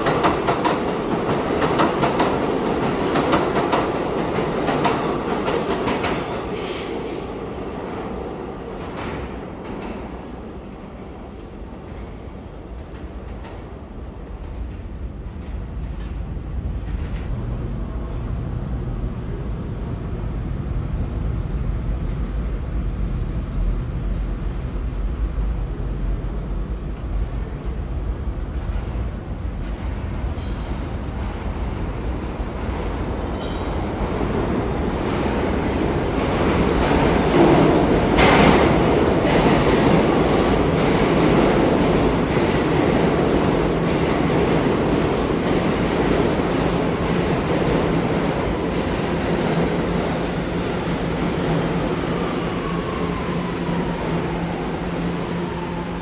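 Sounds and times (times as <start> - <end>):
subway train rumbling: 0.0 - 56.0.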